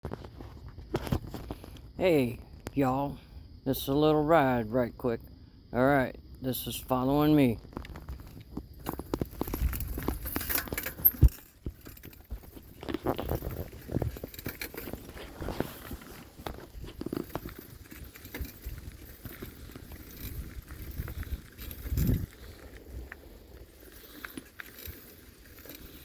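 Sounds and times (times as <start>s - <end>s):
bicycle rattling and knocking: 7.7s - 26.0s.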